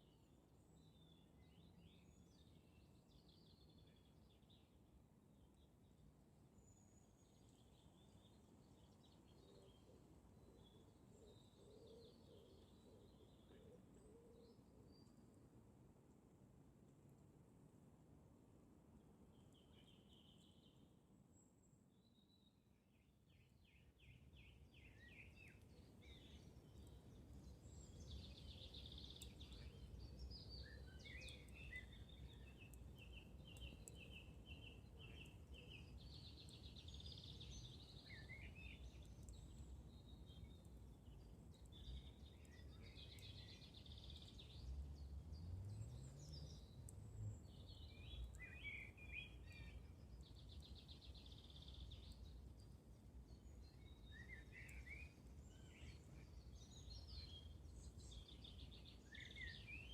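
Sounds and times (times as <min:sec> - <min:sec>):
songbirds trilling and chirping: 0:19.3 - 0:59.9
campfire crackling: 0:25.5 - 0:51.1, 0:51.8 - 0:53.5.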